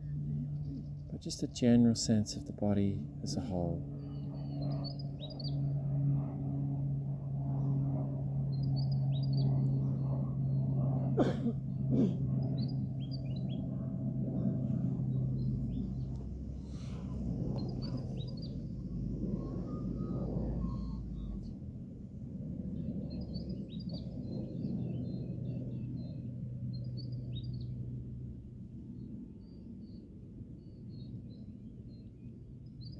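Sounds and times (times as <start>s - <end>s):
steady low hum: 0.0s - 30.6s
birds chirping: 8.4s - 21.5s.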